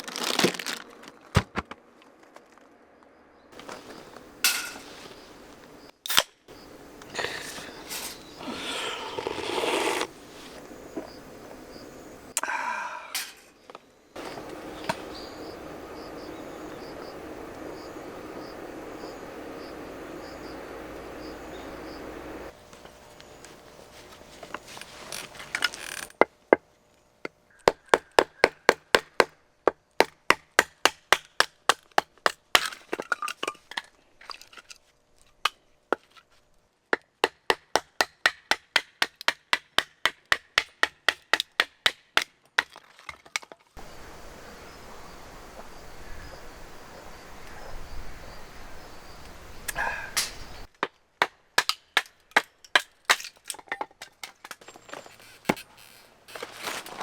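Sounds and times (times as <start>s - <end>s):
wood cracking being split: 0.0s - 1.8s.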